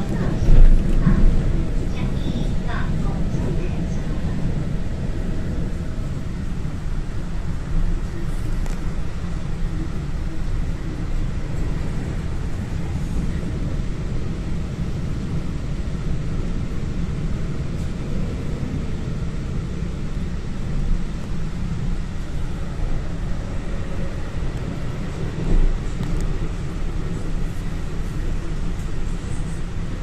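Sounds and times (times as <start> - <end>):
train bump: 0.0 - 3.9
train rumbling: 0.0 - 30.0.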